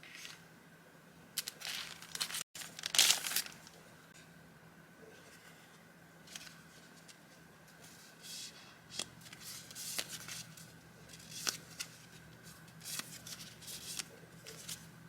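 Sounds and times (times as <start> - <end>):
paper rustling and crinkling: 1.4 - 3.8, 6.2 - 14.9.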